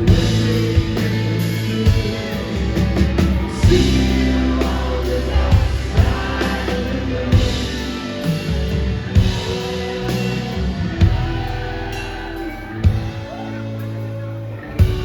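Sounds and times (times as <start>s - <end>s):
person singing: 0.0s - 8.5s
bass: 0.0s - 15.0s
drums: 0.0s - 15.0s
guitar: 0.0s - 15.0s
keyboards: 0.0s - 15.0s.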